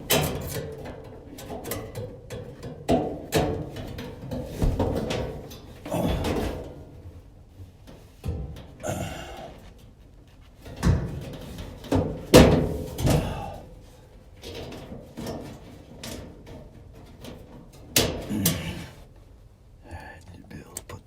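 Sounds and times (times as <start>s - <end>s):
metal parts clunking: 14.4s - 19.1s.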